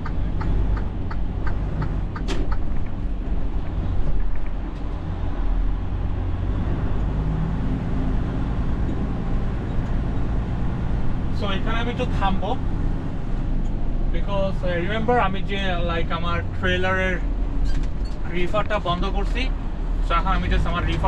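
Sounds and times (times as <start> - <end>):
turn signal clicking: 0.0 - 3.0
truck engine running: 0.0 - 21.0.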